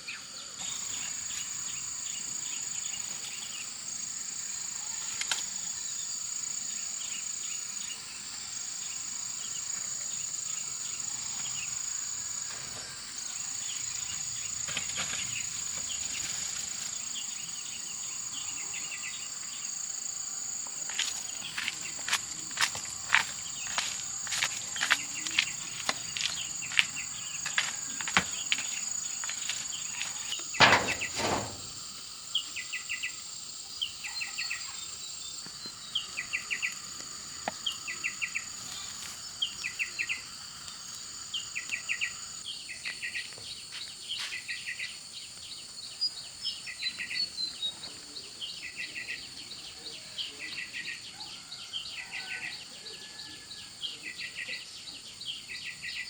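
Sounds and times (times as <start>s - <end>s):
insect drone: 0.0s - 56.0s
knock: 30.6s - 31.8s.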